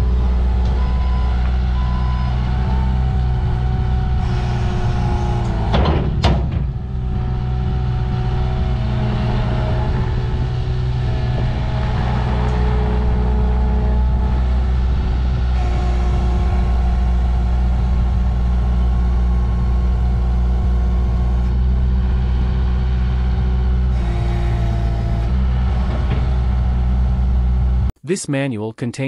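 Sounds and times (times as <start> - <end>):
heavy vehicle engine running: 0.0 - 27.9.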